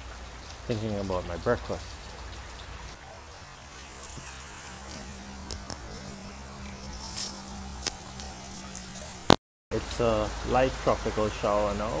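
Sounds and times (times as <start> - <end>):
water drip clicks: 0.0 - 9.4
light rain patter: 0.0 - 12.0
steady low hum: 3.0 - 9.4.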